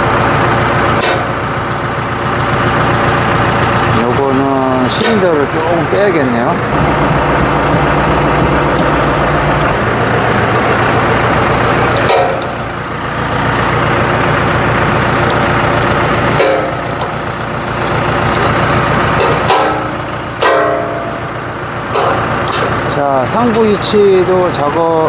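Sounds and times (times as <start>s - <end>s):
tractor engine running: 0.0s - 25.0s
short metallic clanks: 1.0s - 1.4s, 12.0s - 12.6s, 16.4s - 16.8s, 19.2s - 21.2s, 21.9s - 22.8s.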